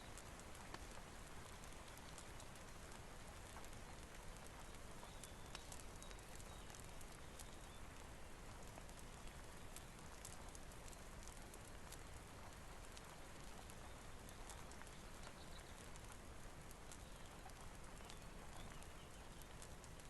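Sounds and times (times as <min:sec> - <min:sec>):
faint rain hiss: 0:00.0 - 0:20.0
wood fire crackling: 0:00.0 - 0:20.0.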